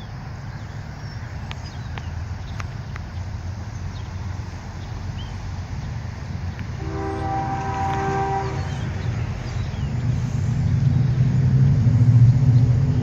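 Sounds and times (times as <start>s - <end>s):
diesel locomotives rumbling: 0.0s - 13.0s
multi-chime air horn blast: 6.8s - 9.1s.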